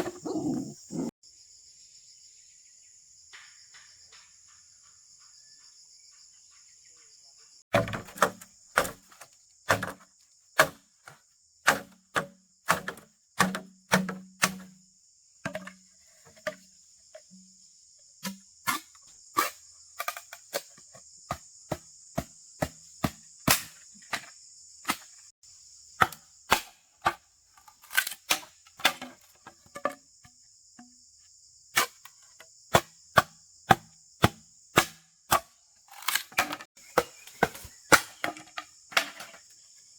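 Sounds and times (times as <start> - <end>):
insects chirring: 0.0 - 39.9
blade chopping wood: 7.7 - 10.9, 11.7 - 14.8, 21.3 - 25.1, 26.0 - 30.0, 31.8 - 32.1, 32.7 - 39.4.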